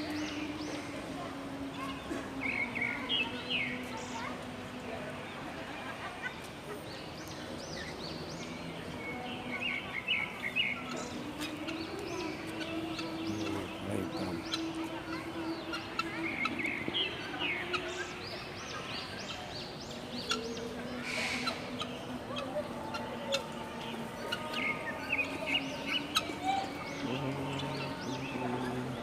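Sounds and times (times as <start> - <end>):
birds chirping and calling: 6.2 - 29.0.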